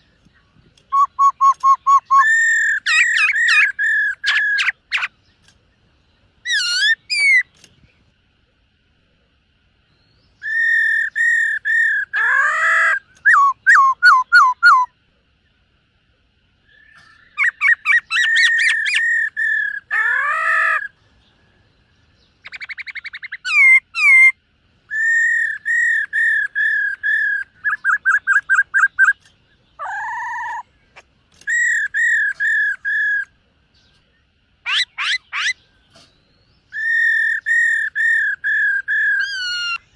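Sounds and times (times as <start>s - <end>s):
bird singing whistled phrases: 0.8s - 5.1s, 10.4s - 14.9s, 22.4s - 29.2s, 31.4s - 33.3s, 36.7s - 39.9s.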